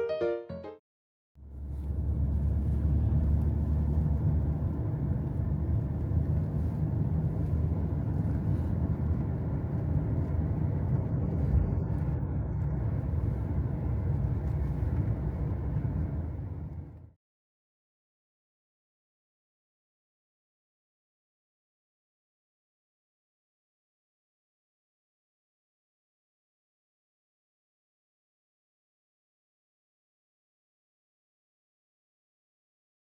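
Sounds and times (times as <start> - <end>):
car road and engine noise: 1.4 - 17.1.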